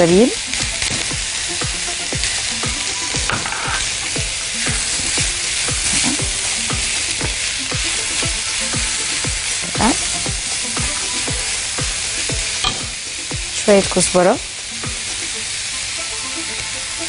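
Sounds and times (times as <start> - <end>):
vegetables sizzling in hot oil: 0.0 - 17.0
spatula scraping pan: 0.5 - 11.8
spatula knocking on pan: 0.6 - 13.6.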